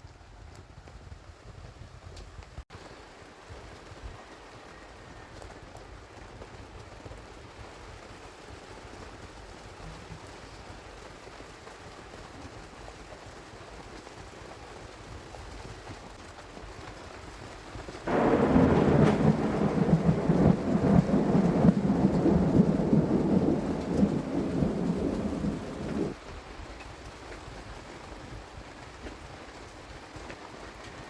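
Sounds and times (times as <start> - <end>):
steady rain: 0.0 - 31.0
heavy rain: 2.8 - 26.7
thunder peal: 18.1 - 26.1.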